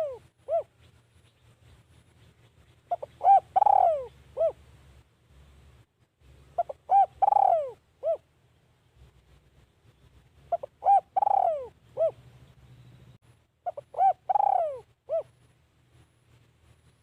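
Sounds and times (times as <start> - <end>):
dove cooing: 0.0 - 0.9, 2.9 - 4.7, 6.6 - 8.3, 10.5 - 12.2, 13.6 - 15.4.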